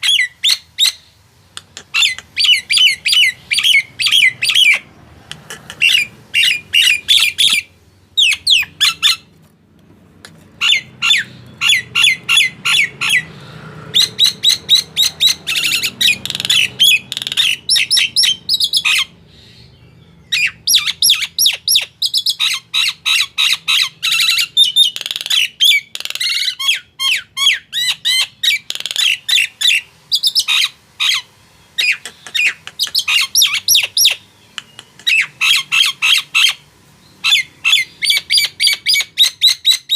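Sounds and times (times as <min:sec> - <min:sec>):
myna bird calling: 0:00.0 - 0:09.4, 0:10.1 - 0:39.9.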